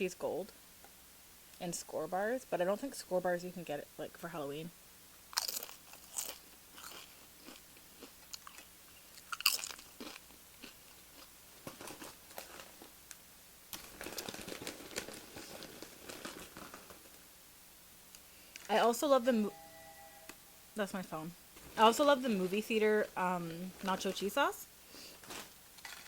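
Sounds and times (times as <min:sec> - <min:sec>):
chips crunching: 0:05.3 - 0:12.9, 0:13.7 - 0:17.2, 0:25.2 - 0:26.0.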